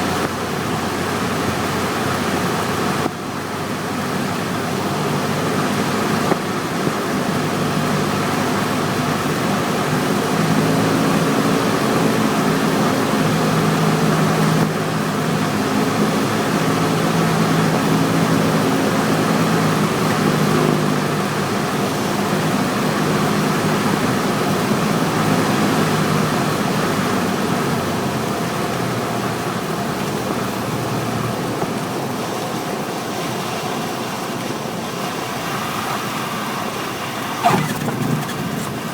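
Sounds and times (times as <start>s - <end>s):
airplane engine and propeller drone: 0.0s - 38.9s
rushing noise: 35.0s - 38.9s.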